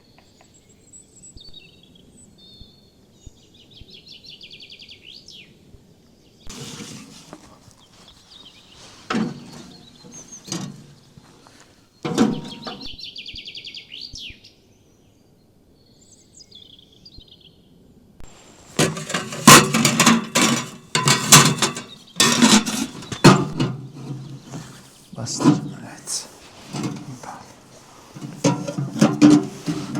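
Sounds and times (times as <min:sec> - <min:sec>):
songbirds trilling: 0:06.3 - 0:17.6, 0:18.8 - 0:29.9
loud knocks and clatter: 0:18.8 - 0:23.8.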